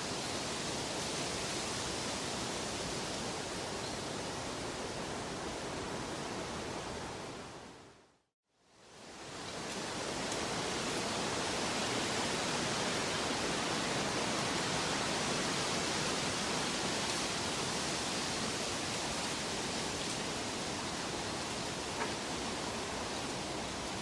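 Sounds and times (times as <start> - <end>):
rushing water: 9.0 - 24.0.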